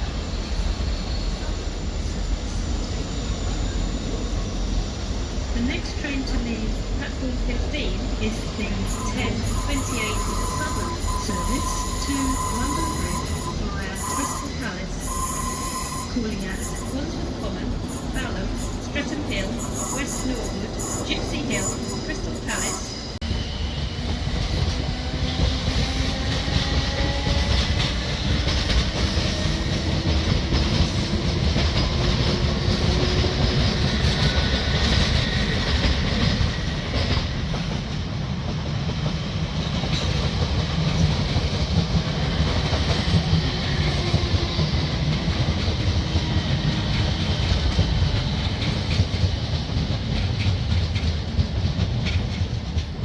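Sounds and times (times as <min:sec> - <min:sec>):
train wheels rumbling on rails: 0:00.0 - 0:53.0
train whine sliding in pitch: 0:06.2 - 0:37.8.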